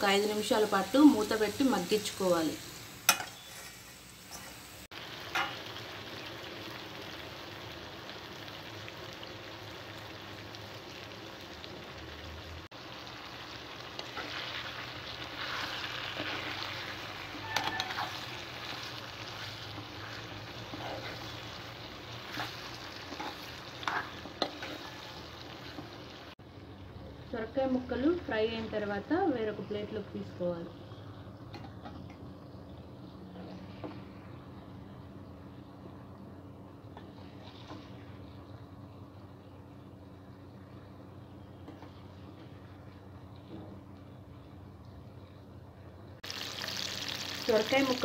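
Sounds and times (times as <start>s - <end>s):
food sizzling in hot oil: 0.0s - 31.6s, 46.2s - 48.0s
spatula scraping pan: 3.1s - 4.7s, 14.0s - 26.0s.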